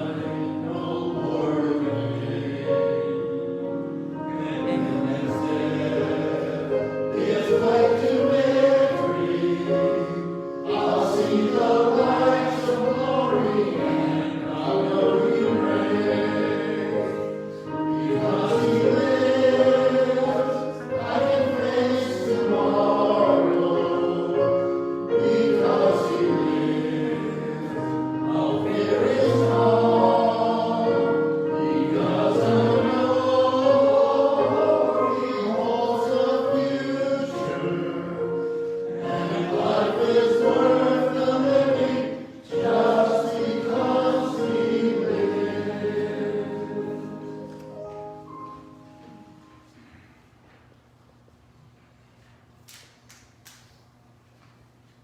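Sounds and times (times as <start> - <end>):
choir singing a hymn: 0.0 - 50.2.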